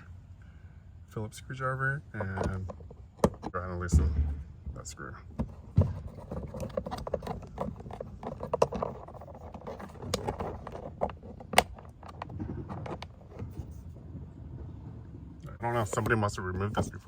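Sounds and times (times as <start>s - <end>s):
screwdriver clicking and scraping: 6.0s - 13.1s.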